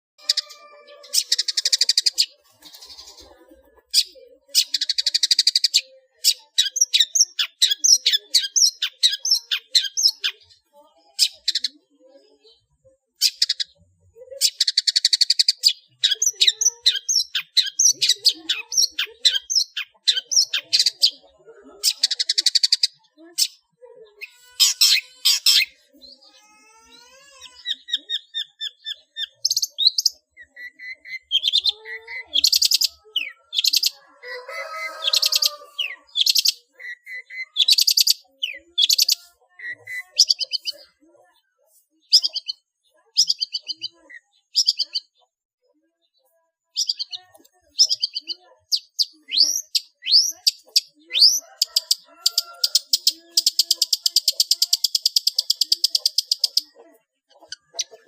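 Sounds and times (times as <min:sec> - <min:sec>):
bird singing varied song: 0:00.2 - 0:58.0.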